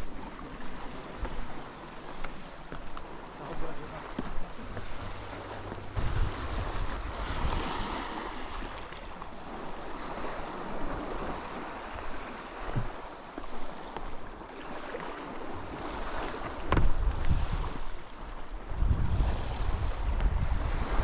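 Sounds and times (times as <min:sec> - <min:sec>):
sea surf washing on shore: 0:00.0 - 0:21.0
wind buffeting microphone: 0:03.9 - 0:13.1, 0:15.4 - 0:21.0.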